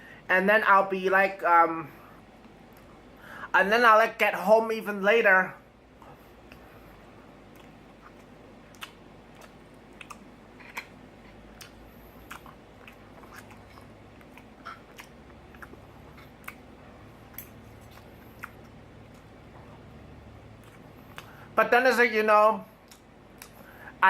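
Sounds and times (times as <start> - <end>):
person chewing food: 5.9 - 21.6, 22.7 - 24.0
soft mouth clicks: 7.5 - 10.9, 22.8 - 23.7.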